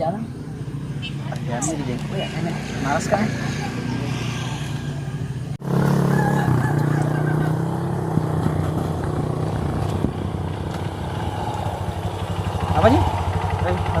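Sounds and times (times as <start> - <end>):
motorcycle engine running: 4.8 - 14.0.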